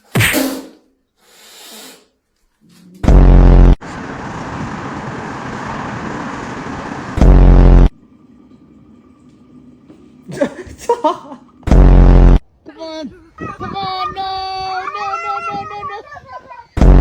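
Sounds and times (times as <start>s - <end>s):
loud distorted buzz: 3.0s - 3.8s, 6.6s - 8.0s, 11.7s - 12.5s, 16.8s - 17.0s.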